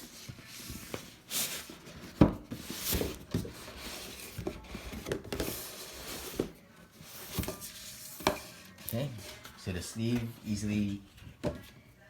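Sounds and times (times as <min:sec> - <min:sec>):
cardboard rubbing and scraping: 0:00.0 - 0:09.6.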